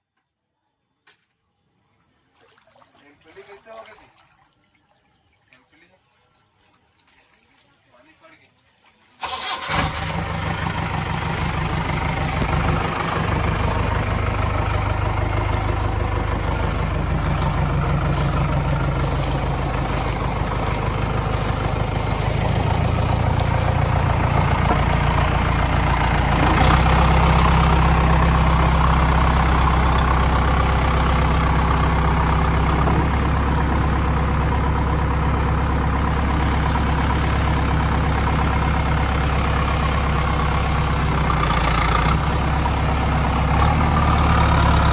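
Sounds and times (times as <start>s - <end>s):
diesel engine idling: 9.2s - 44.9s.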